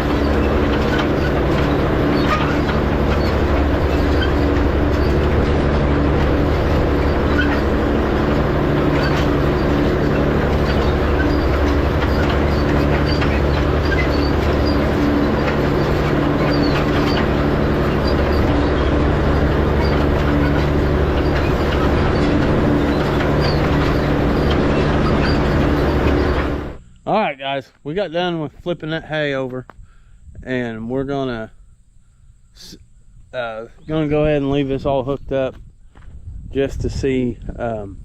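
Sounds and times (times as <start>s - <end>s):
hay rake clicking and rattling: 0.0s - 26.8s
tractor engine under load: 0.0s - 27.3s.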